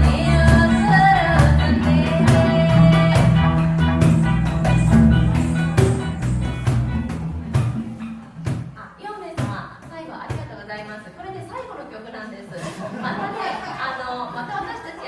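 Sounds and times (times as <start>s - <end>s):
woman singing: 0.0s - 5.2s
live band playing: 0.0s - 9.0s.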